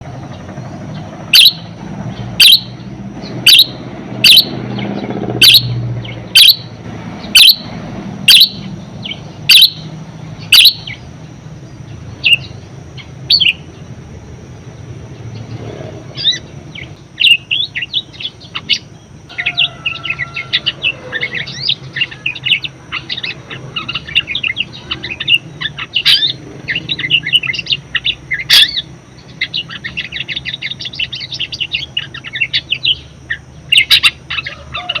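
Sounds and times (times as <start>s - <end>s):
budgerigar chirping and warbling: 1.3s - 1.7s, 2.4s - 2.8s, 3.4s - 6.7s, 7.3s - 7.7s, 8.3s - 11.0s, 12.2s - 13.7s, 16.2s - 35.0s.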